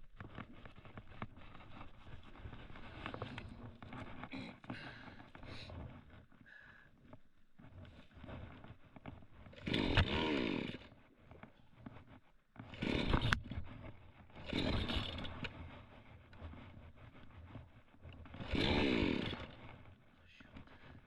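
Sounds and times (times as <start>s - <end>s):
chainsaw revving and idling: 9.5s - 10.9s, 12.7s - 13.6s, 14.3s - 15.6s, 18.3s - 19.8s.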